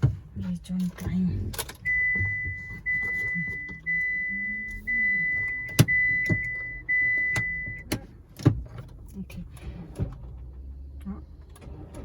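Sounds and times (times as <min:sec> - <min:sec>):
car warning chime: 0:01.7 - 0:08.0.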